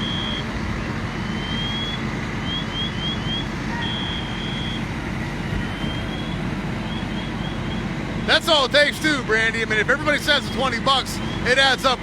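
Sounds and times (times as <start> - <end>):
high-pitched electronic alarm: 0.0 - 0.5, 1.3 - 4.9
low engine rumble: 0.0 - 12.0.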